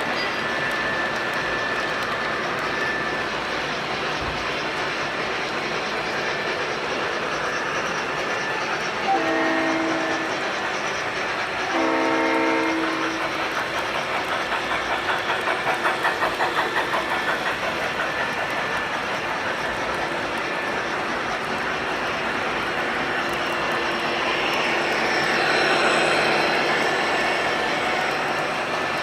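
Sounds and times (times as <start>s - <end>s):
model trains rumbling on track: 0.0s - 29.0s
model locomotive horn: 9.1s - 10.4s, 11.7s - 13.3s.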